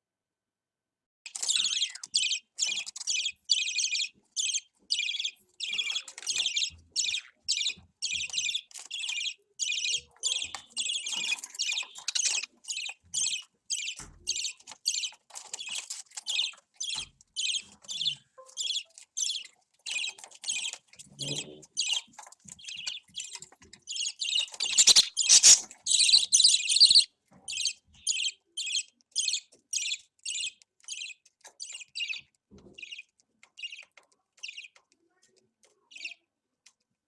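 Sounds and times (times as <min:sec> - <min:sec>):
bird chicks calling: 0:01.3 - 0:08.6, 0:16.9 - 0:30.6.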